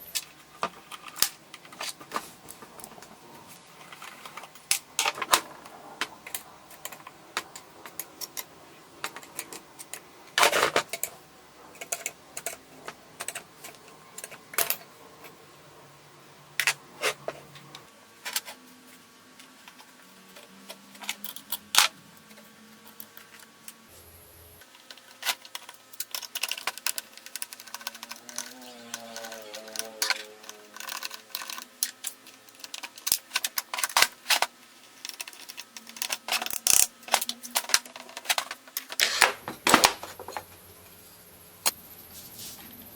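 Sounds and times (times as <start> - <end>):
metal parts and tools clinking: 24.8 - 40.6.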